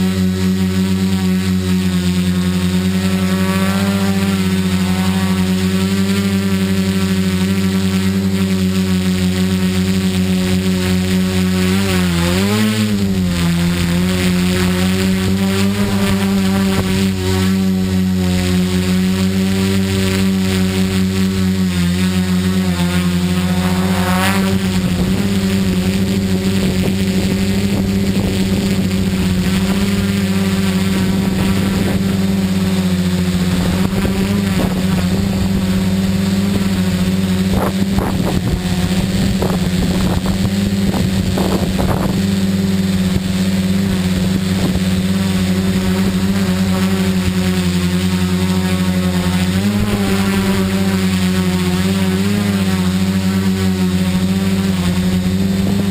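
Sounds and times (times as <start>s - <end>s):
drone motors and propellers humming: 0.0s - 55.9s
wind gusts on microphone: 23.4s - 47.4s.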